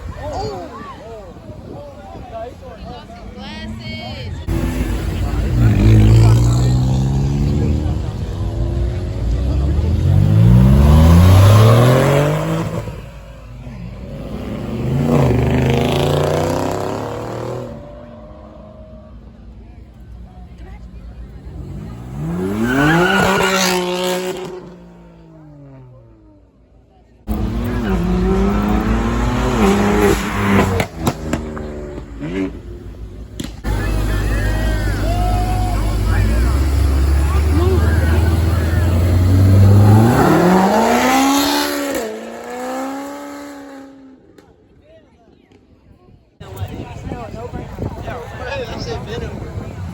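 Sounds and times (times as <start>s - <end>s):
car engine revving and accelerating: 4.4s - 19.3s, 21.2s - 26.0s, 27.2s - 44.2s.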